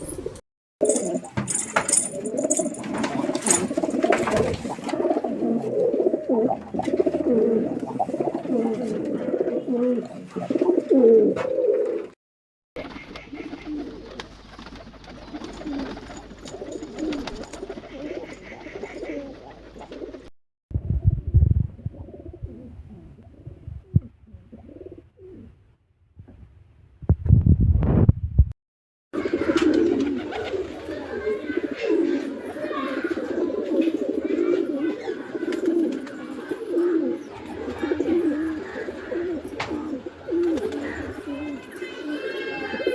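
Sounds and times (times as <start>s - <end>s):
pigeons cooing: 0.0s - 12.2s, 12.8s - 20.3s, 21.8s - 25.5s, 29.2s - 42.9s.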